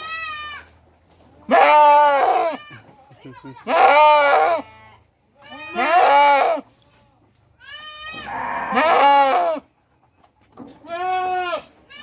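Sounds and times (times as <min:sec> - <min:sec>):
goat bleating loudly: 0:00.0 - 0:00.8, 0:01.4 - 0:06.6, 0:07.6 - 0:09.6, 0:10.8 - 0:12.0.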